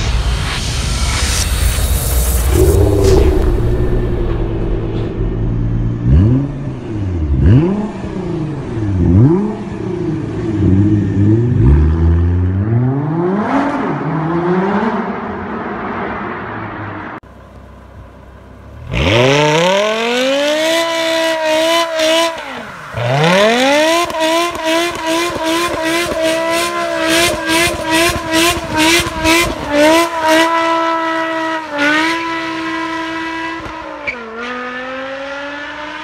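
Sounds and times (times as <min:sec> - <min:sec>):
car engine revving hard: 0:05.8 - 0:15.1, 0:18.8 - 0:36.0.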